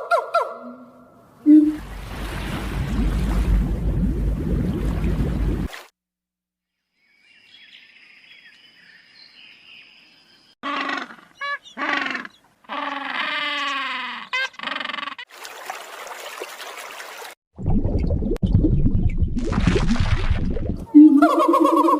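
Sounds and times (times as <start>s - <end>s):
animal calling: 10.6s - 15.3s, 20.9s - 21.9s.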